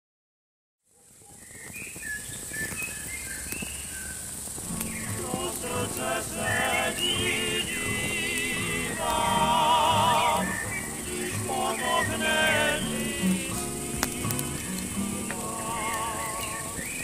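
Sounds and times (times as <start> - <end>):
birds chirping: 1.4 - 17.0
steady high hiss: 1.7 - 17.0
music with held sung notes: 4.8 - 17.0.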